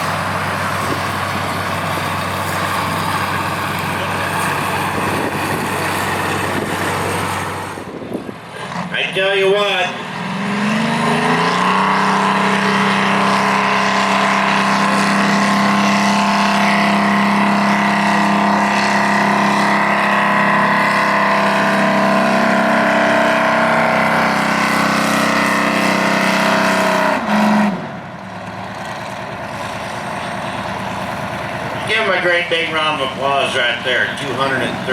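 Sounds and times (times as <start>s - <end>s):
engine idling: 0.0s - 9.8s, 28.0s - 34.9s
engine at full throttle: 0.0s - 34.9s.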